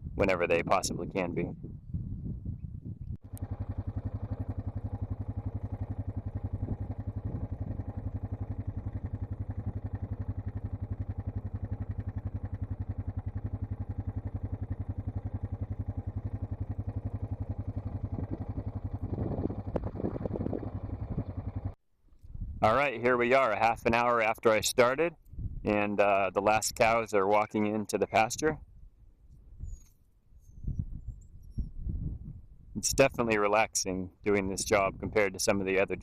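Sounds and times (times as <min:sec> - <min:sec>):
small vehicle engine running: 0:03.2 - 0:21.8.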